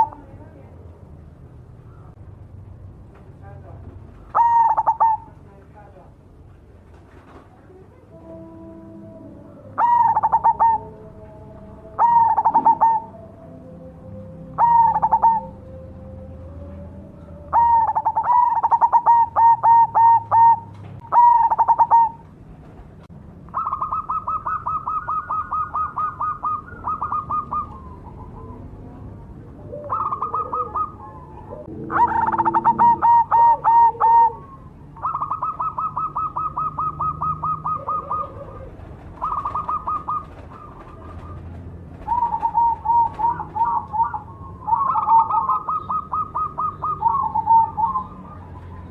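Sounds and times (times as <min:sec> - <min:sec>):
dove cooing: 0:00.0 - 0:00.5, 0:04.2 - 0:05.4, 0:07.7 - 0:22.8, 0:23.5 - 0:48.9
dove rattling trills: 0:04.1 - 0:05.3, 0:09.8 - 0:11.0, 0:11.9 - 0:13.2, 0:14.5 - 0:15.6, 0:17.5 - 0:28.6, 0:29.7 - 0:48.9.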